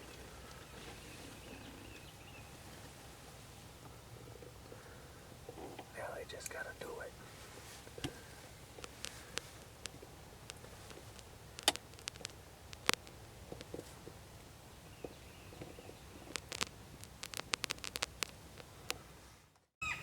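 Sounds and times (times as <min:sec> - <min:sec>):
light clicks and ticks: 0:07.9 - 0:13.9, 0:15.0 - 0:19.6.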